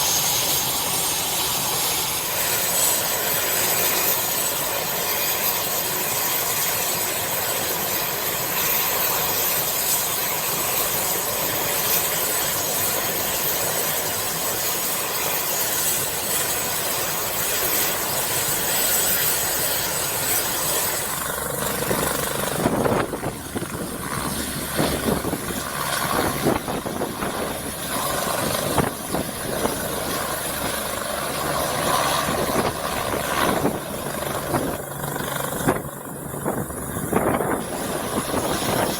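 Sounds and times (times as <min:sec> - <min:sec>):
helicopter rotor noise: 0:00.0 - 0:38.9
helicopter turbine whine: 0:00.0 - 0:38.9
wind buffeting microphone: 0:21.2 - 0:38.9.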